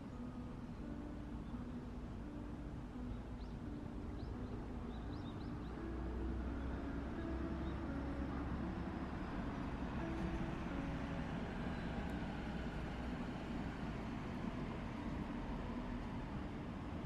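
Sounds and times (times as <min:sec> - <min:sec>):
low traffic rumble: 0:00.0 - 0:17.0
soft background music: 0:00.0 - 0:17.0
faint bird chirps: 0:03.1 - 0:05.8.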